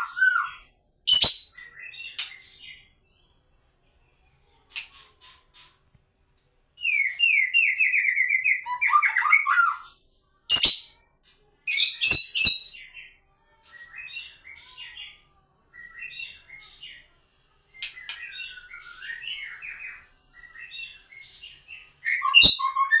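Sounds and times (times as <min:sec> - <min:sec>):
songbird singing varied phrases: 0:06.8 - 0:11.0, 0:17.8 - 0:23.0.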